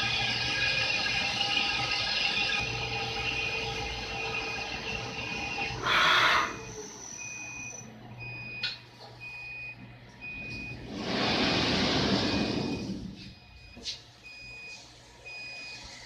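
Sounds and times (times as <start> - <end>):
low machine hum: 0.0 - 16.0
warning beeper: 0.4 - 7.9.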